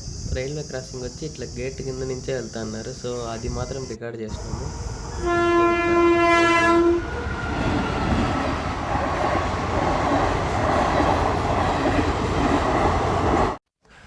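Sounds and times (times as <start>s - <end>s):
train rumbling past: 0.9s - 13.6s
train horn blast: 5.0s - 7.7s.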